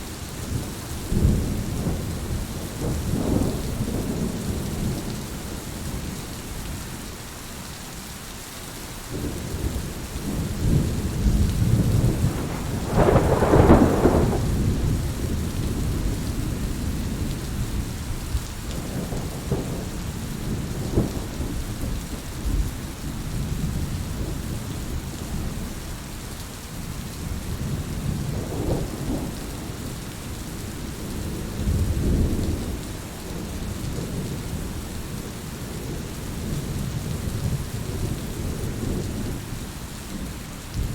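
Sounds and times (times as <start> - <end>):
heavy rain hissing: 0.0 - 40.9
rolling thunder: 0.4 - 6.1, 9.1 - 25.7.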